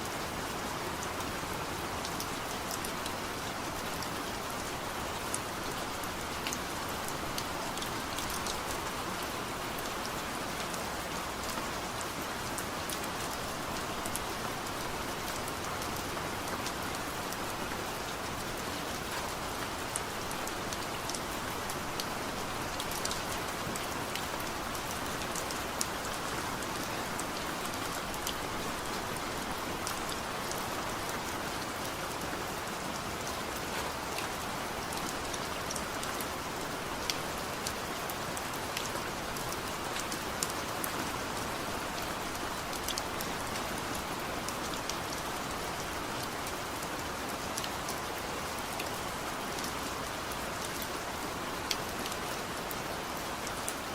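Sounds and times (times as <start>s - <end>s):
heavy rain on a surface: 0.0s - 53.9s.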